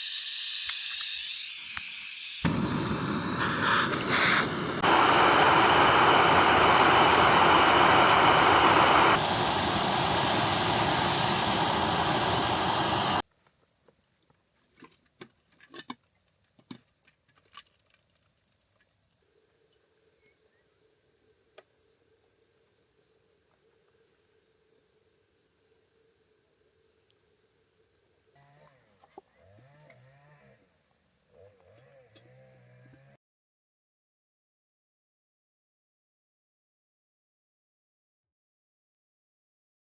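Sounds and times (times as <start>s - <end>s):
insect high trill: 0.0s - 4.6s
loud rushing noise: 2.4s - 13.2s.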